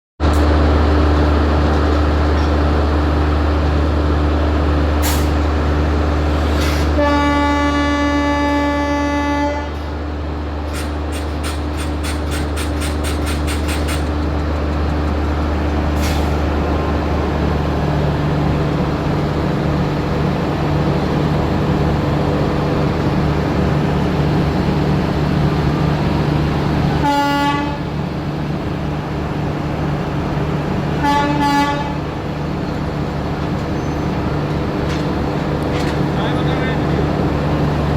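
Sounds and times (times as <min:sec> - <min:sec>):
train rumbling: 0:00.2 - 0:37.9
train horn: 0:06.8 - 0:09.9, 0:27.0 - 0:27.9, 0:31.0 - 0:32.1.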